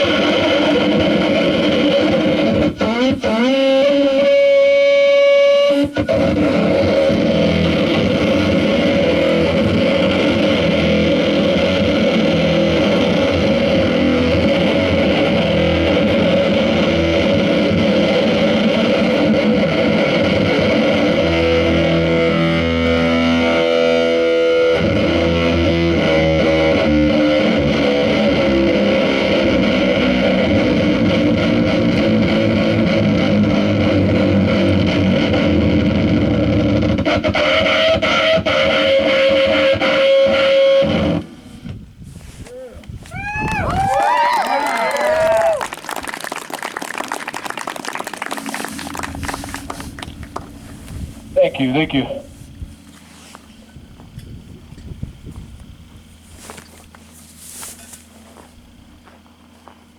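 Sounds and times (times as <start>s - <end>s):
distorted noise music: 0.0s - 41.3s, 48.4s - 53.4s
held droning tones: 0.0s - 44.1s, 44.7s - 59.9s.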